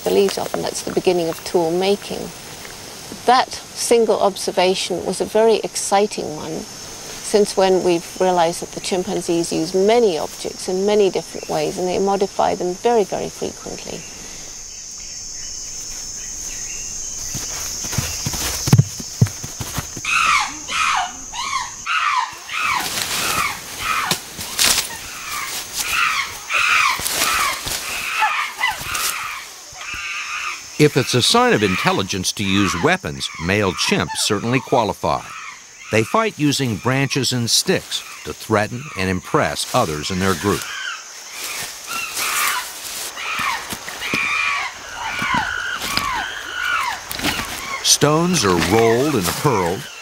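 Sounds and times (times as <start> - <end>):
chimpanzees screaming and calling: 20.0 - 37.2, 37.8 - 50.0.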